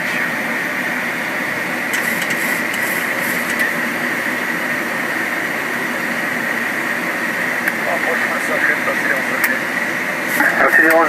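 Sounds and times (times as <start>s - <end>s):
jet engine noise: 0.0s - 11.0s
airflow rushing: 1.9s - 7.7s.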